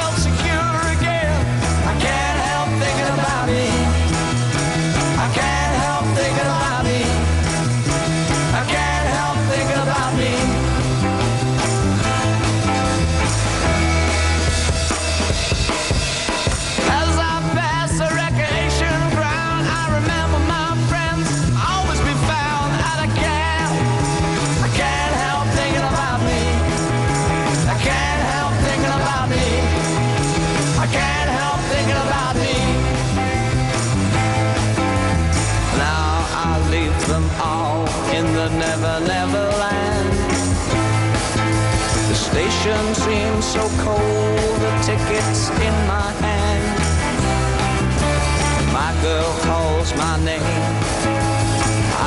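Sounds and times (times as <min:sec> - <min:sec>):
person singing: 0:00.0 - 0:07.6, 0:08.3 - 0:11.3, 0:16.8 - 0:33.5, 0:35.7 - 0:40.7, 0:42.0 - 0:47.0, 0:48.6 - 0:50.9
pop song with drums and bass: 0:00.0 - 0:52.0.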